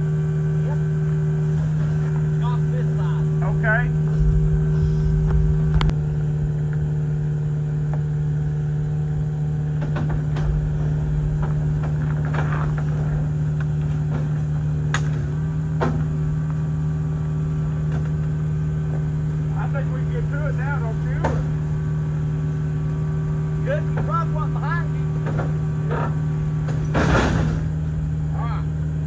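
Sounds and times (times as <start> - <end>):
heavy equipment engine humming: 0.0 - 29.0
sharp metallic clanks: 14.8 - 15.4.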